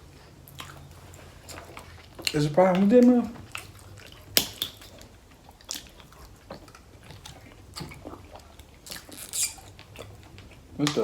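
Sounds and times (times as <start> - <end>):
person chewing: 0.0 - 11.0.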